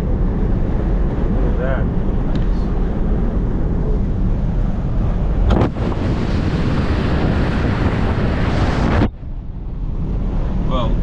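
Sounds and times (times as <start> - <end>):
wind buffeting microphone: 0.1 - 11.0
ocean surf rushing: 4.8 - 9.1.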